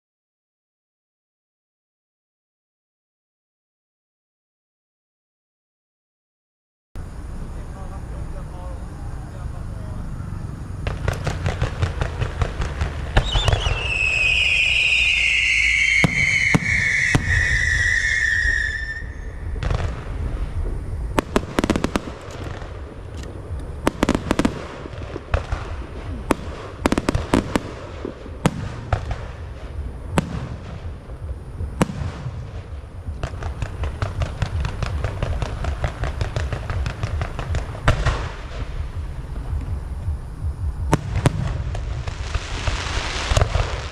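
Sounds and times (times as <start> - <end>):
fireworks crackling: 7.1 - 43.9
firework bangs: 10.7 - 43.9
firework whistle falling in pitch: 13.2 - 19.8.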